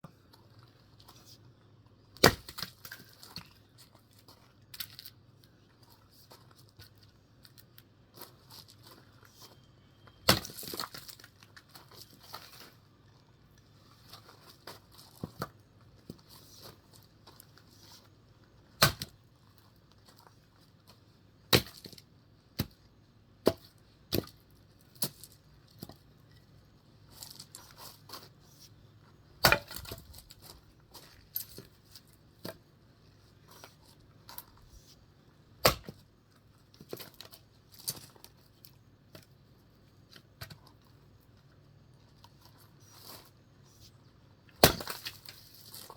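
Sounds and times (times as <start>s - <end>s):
axe chopping wood: 2.2s - 3.0s, 10.2s - 11.0s, 18.8s - 19.2s, 21.5s - 22.0s, 22.6s - 22.8s, 23.4s - 24.4s, 29.4s - 30.1s, 35.6s - 36.0s, 44.5s - 45.3s.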